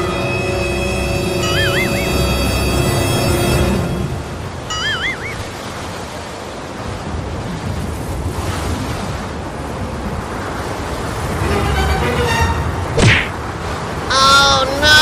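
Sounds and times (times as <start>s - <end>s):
sea waves: 0.0s - 15.0s
warbling whistle: 1.2s - 2.5s, 4.7s - 5.5s
wind on microphone: 4.4s - 14.1s.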